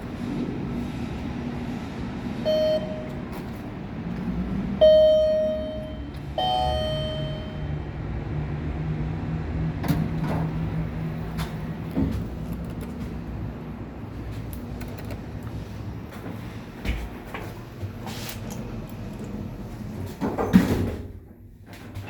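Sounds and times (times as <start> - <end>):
elevator chime: 2.4 - 3.4, 4.8 - 7.9.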